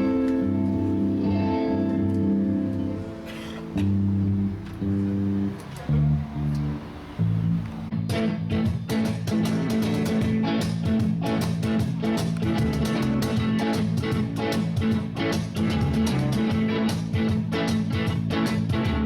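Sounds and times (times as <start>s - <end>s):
bass guitar: 0.0s - 19.0s
guitar: 0.0s - 19.0s
steady drum beat: 8.0s - 19.0s.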